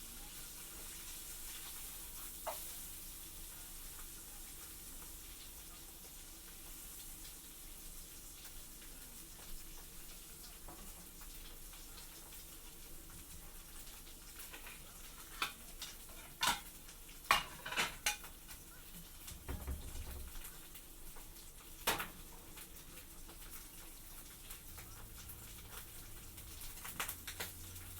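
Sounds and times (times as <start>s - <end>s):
faint steady hiss: 0.0s - 27.9s
dishes and utensils clinking: 15.3s - 18.3s.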